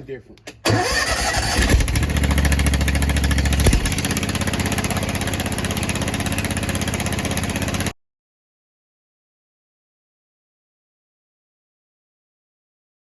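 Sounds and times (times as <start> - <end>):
pressure washer engine running: 1.0 - 8.0.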